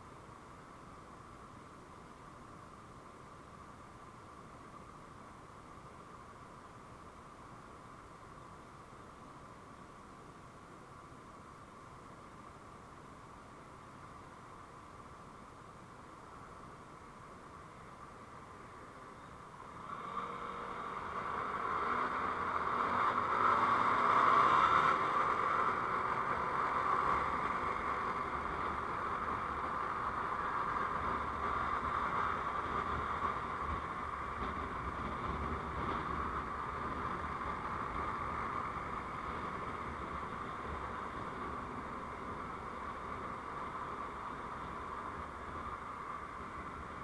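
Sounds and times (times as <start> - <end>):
road noise: 0.0 - 47.0
vehicle engine accelerating: 19.7 - 47.0.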